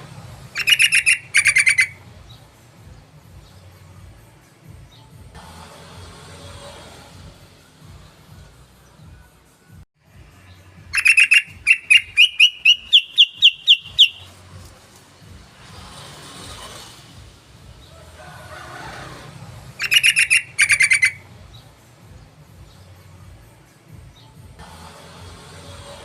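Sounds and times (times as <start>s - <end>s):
bulbul song: 0.0s - 5.3s, 7.8s - 15.1s, 19.7s - 24.6s.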